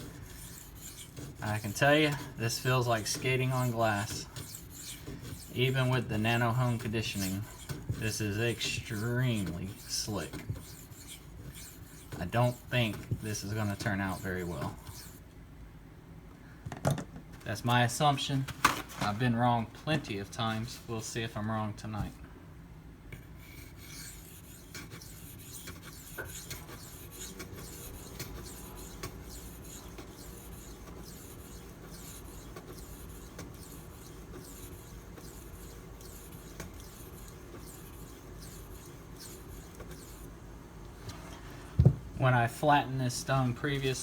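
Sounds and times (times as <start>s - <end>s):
knife scraping on sharpening stone: 0.0s - 15.2s, 23.4s - 40.3s.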